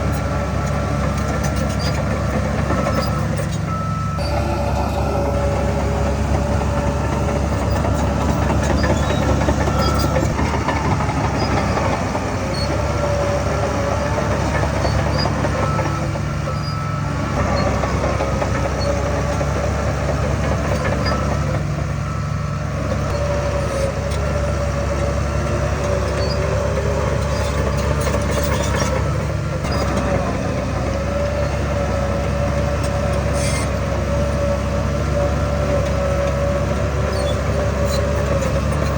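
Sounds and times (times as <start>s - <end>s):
diesel machinery engine rumble: 0.0s - 38.9s
steady machine whine: 3.8s - 14.3s.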